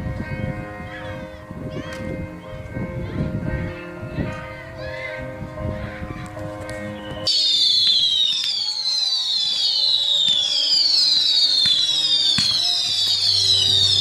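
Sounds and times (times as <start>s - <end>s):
whistling fireworks: 7.0s - 14.0s
firework cracks: 7.3s - 14.0s.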